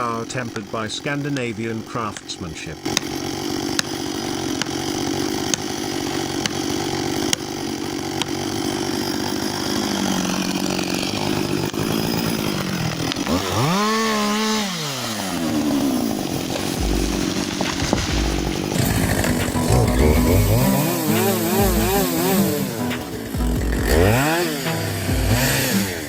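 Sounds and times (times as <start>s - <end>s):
chainsaw cutting and revving: 0.0s - 26.0s.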